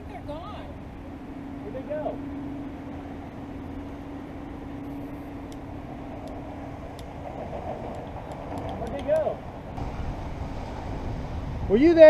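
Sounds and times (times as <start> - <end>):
constant hum: 0.0 - 12.0
low rumble: 9.7 - 12.0.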